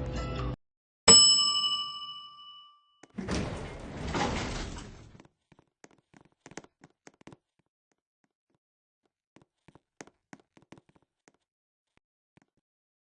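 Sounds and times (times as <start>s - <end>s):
bright metallic ding: 1.1s - 2.9s.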